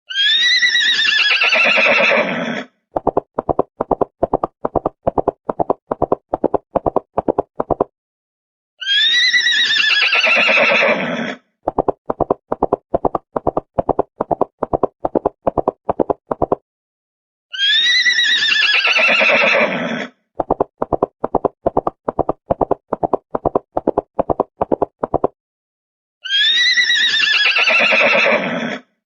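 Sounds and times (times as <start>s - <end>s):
horse whinnying: 0.1s - 2.7s, 8.8s - 11.4s, 17.6s - 20.2s, 26.2s - 28.9s.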